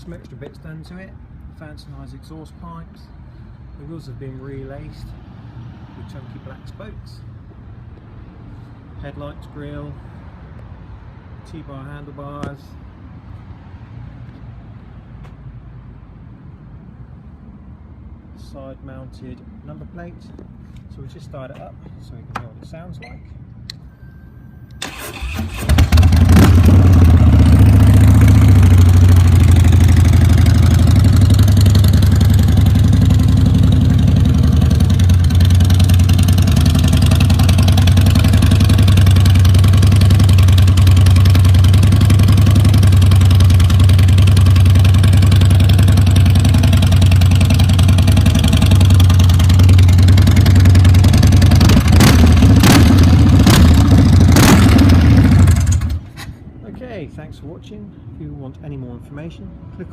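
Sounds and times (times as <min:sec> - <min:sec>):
motorcycle engine idling: 0:25.7 - 0:56.1.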